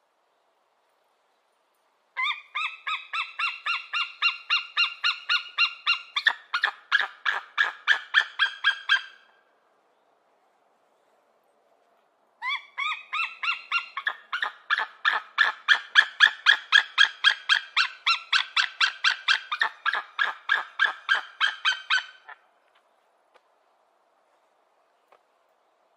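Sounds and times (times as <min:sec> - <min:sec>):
eagle calling: 0:02.2 - 0:09.4, 0:12.4 - 0:22.4.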